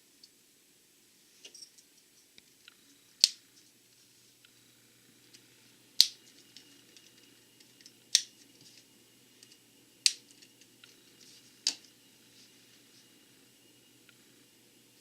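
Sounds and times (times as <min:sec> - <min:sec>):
plastic pieces snapping together: 0:10.0 - 0:10.5.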